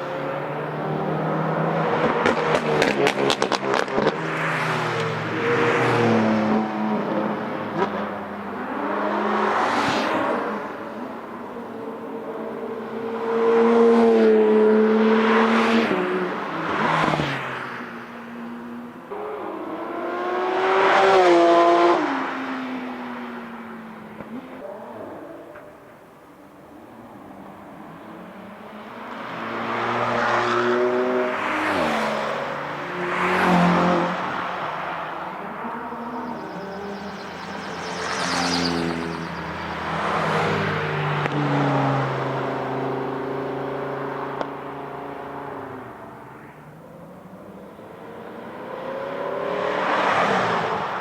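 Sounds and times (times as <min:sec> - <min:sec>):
sports car passing at speed: 0:00.0 - 0:51.0
car engine revving high: 0:26.7 - 0:46.2.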